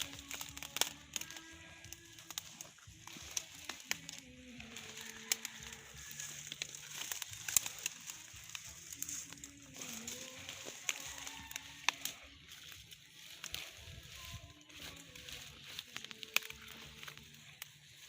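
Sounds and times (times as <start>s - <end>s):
crackling and rustling clicks: 0.0s - 12.3s.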